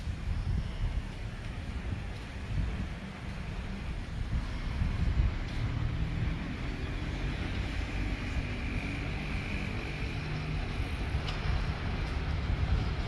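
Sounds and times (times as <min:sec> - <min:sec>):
diesel train rumble: 0:00.0 - 0:13.0
wind buffeting microphone: 0:00.0 - 0:13.0.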